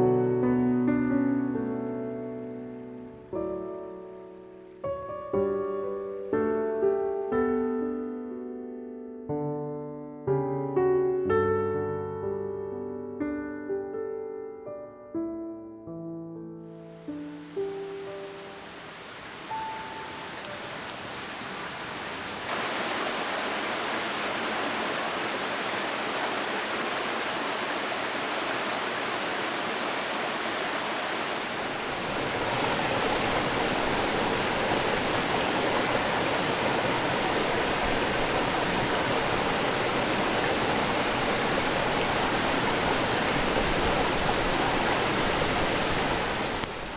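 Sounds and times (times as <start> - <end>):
mountain stream rushing: 17.0 - 46.9.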